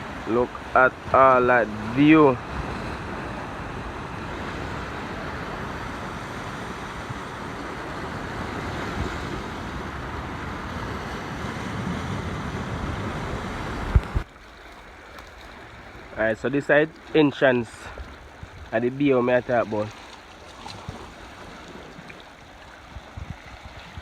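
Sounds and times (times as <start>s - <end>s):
sea surf rushing: 0.0s - 14.3s, 15.6s - 20.0s
wind blowing across microphone: 0.0s - 14.3s, 16.1s - 19.9s, 20.6s - 24.0s.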